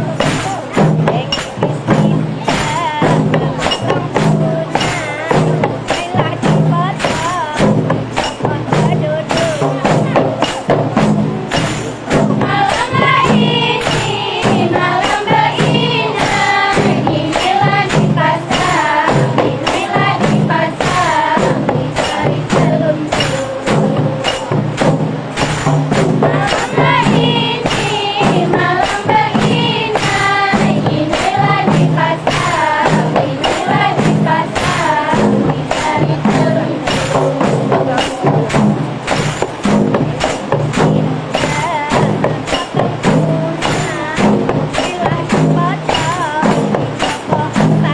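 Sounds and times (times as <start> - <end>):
frame drums and jingles: 0.0 - 47.9
voices singing: 0.0 - 47.9.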